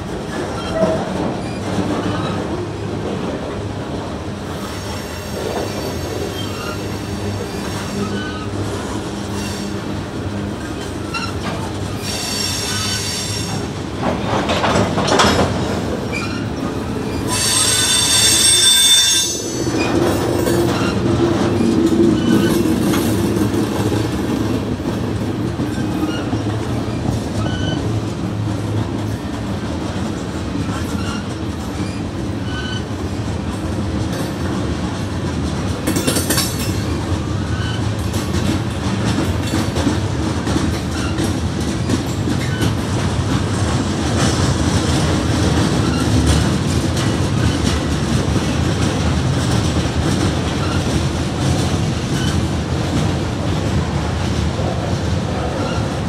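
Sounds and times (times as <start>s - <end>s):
wheels clacking over rail joints: 0.0s - 18.5s, 19.3s - 56.0s
freight train rumbling past: 0.0s - 56.0s
wheels screeching on rail: 0.2s - 33.2s, 35.7s - 56.0s.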